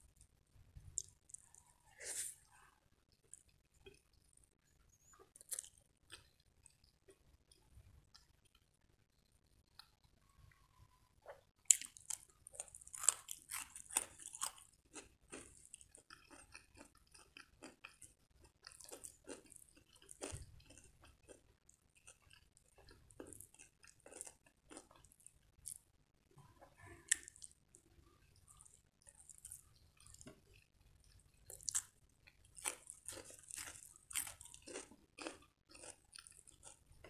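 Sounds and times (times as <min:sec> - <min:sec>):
soft wet chewing: 0:00.1 - 0:37.0
crunchy cucumber bites: 0:32.6 - 0:36.8.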